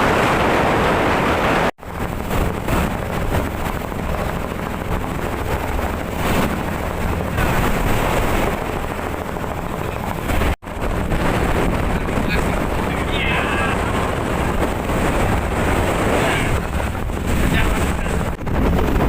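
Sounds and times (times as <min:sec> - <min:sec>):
boat rushing through rough sea: 0:00.0 - 0:19.0
wind buffeting microphone: 0:00.0 - 0:19.0.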